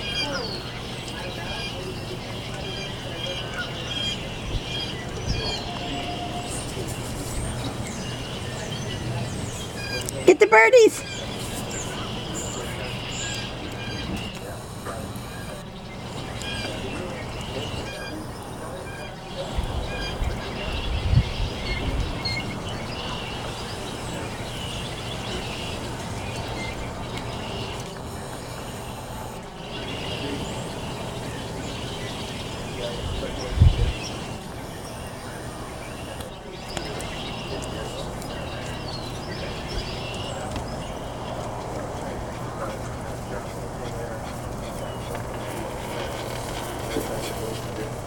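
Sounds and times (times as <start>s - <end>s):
small birds chirping: 0.0s - 48.0s
steady low hum: 11.0s - 48.0s.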